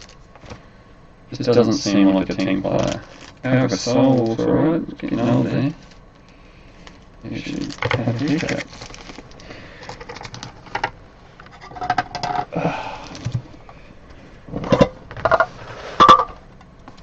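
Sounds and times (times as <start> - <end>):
cards and packaging rustling: 0.0 - 0.7, 2.3 - 4.4, 5.6 - 13.5.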